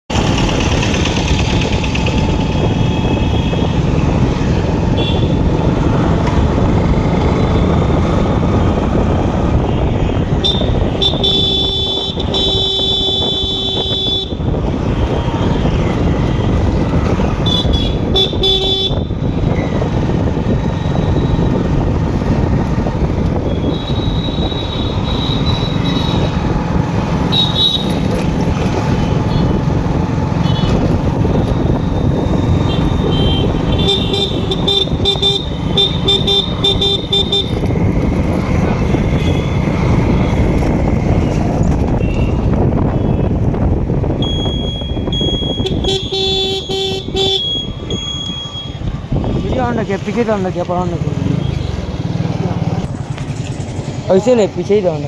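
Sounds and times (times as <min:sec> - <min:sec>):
motorcycle road and engine noise: 0:00.0 - 0:55.0
vehicle horns honking: 0:04.8 - 0:05.5, 0:09.6 - 0:14.4, 0:17.4 - 0:19.1, 0:27.2 - 0:28.0, 0:30.4 - 0:30.9, 0:32.6 - 0:37.6, 0:44.2 - 0:49.6.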